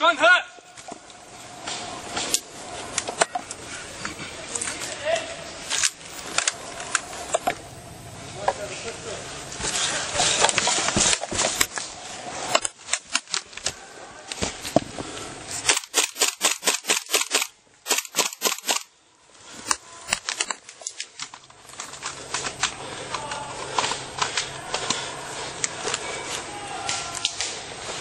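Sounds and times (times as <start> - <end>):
airsoft guns firing: 15.6 - 18.9.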